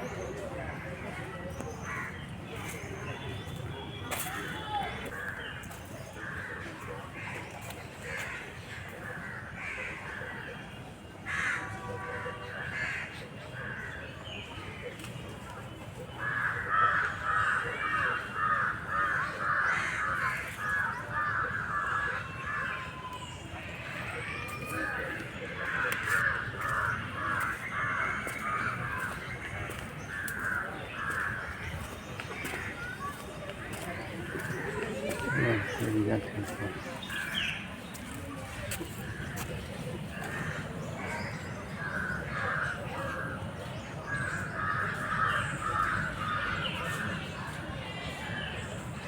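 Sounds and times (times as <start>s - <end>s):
crows cawing: 25.6s - 37.6s.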